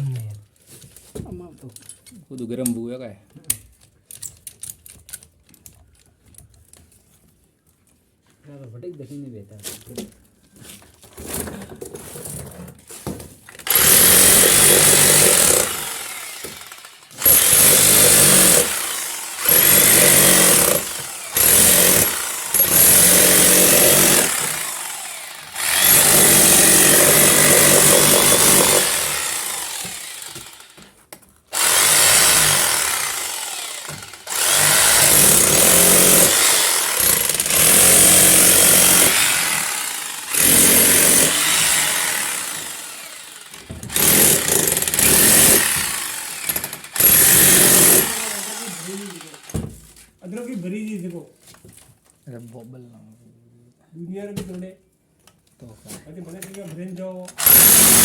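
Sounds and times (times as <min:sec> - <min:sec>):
hammer drill chiseling into wall: 0:13.6 - 0:49.8, 0:57.3 - 0:58.0.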